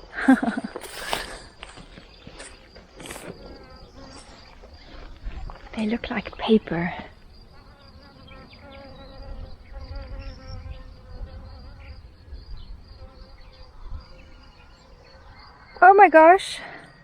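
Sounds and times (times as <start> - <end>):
flying insect buzzing: 0.6 - 12.3
wind rumble on microphone: 3.2 - 15.8.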